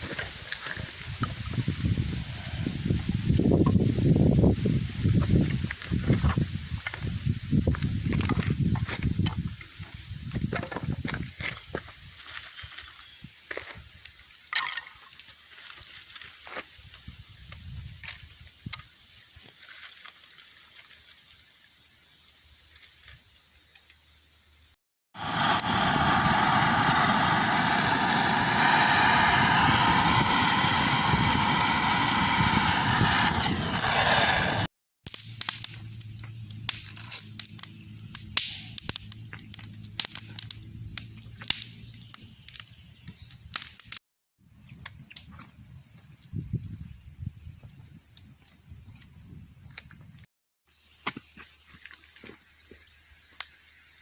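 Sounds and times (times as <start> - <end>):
steady high hiss: 20.6 - 42.9
high-pitched insect drone: 35.2 - 54.0.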